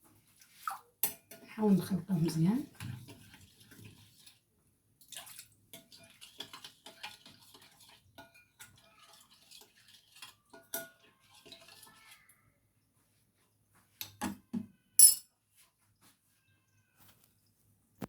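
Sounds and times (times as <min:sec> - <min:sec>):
stirring wet mixture: 0:00.0 - 0:14.2
utensil clinking against dish: 0:05.8 - 0:12.0, 0:15.0 - 0:15.3.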